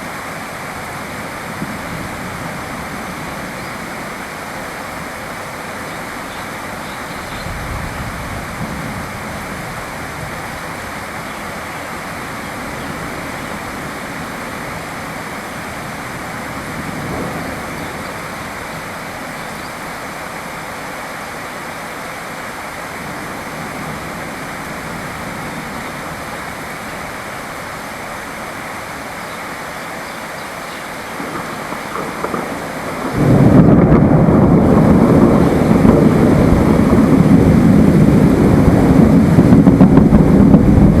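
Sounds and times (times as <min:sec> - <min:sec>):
steady rain: 0:00.0 - 0:41.0
thunder rolling: 0:07.2 - 0:19.3, 0:31.1 - 0:41.0
deep rushing roar: 0:31.2 - 0:41.0.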